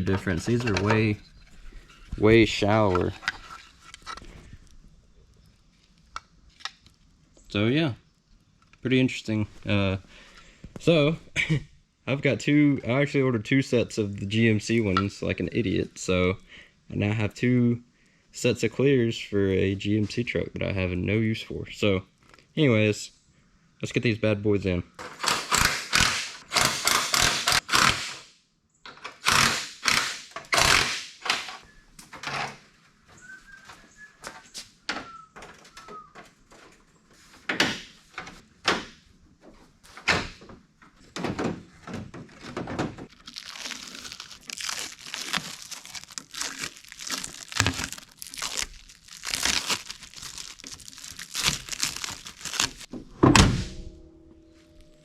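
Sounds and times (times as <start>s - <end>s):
crinkling and rustling: 0.0s - 7.5s, 31.9s - 53.1s.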